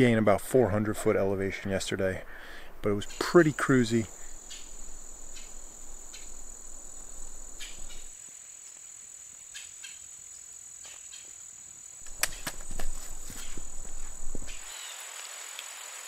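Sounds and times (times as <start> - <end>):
high-pitched insect-like trill: 3.6 - 8.2
rustling: 12.0 - 14.9.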